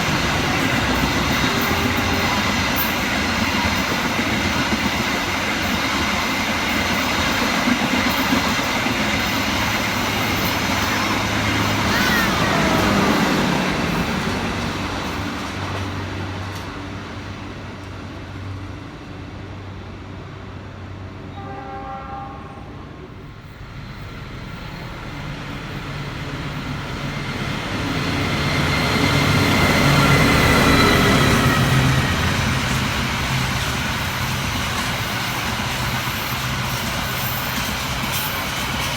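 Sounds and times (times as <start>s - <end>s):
distant train horn: 0.0s - 3.8s, 10.3s - 14.1s, 21.3s - 23.2s
train passing on rails: 0.0s - 38.9s.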